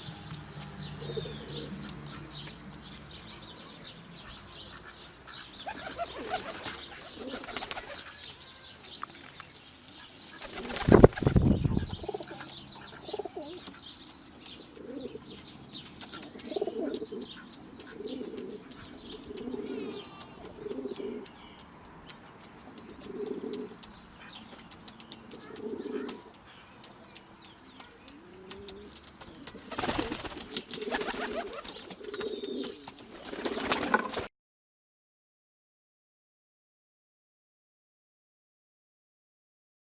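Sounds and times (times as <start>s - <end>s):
pigeons cooing: 0.9s - 2.4s, 4.2s - 8.3s, 10.4s - 21.6s, 22.6s - 26.4s, 27.8s - 34.2s
wings flapping: 5.7s - 8.4s, 9.1s - 12.6s, 27.2s - 34.3s.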